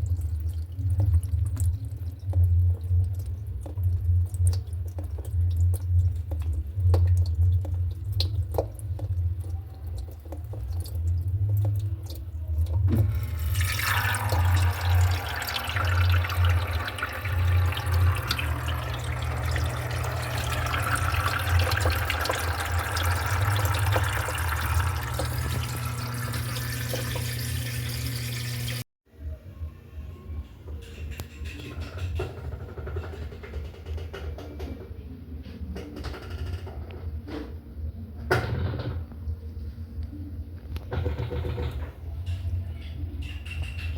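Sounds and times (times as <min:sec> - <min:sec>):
washing machine motor hum: 0:00.0 - 0:28.9
water rushing into tub: 0:12.8 - 0:28.8.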